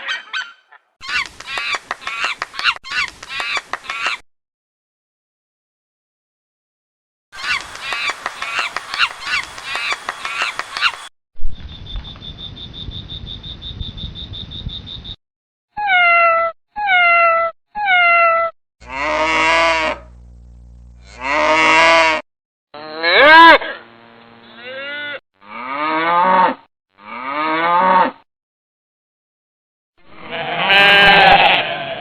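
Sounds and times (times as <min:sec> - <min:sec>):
loud arching animal call: 0:07.4 - 0:11.0, 0:15.8 - 0:20.1, 0:21.0 - 0:22.2, 0:30.2 - 0:32.0
rapid animal chirping: 0:07.4 - 0:11.1.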